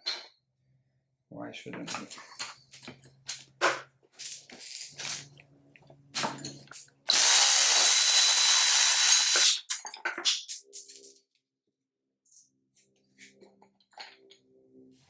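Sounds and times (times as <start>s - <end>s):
metal tools clattering: 6.2s - 7.1s, 9.6s - 11.2s
power drill whining: 7.1s - 9.6s.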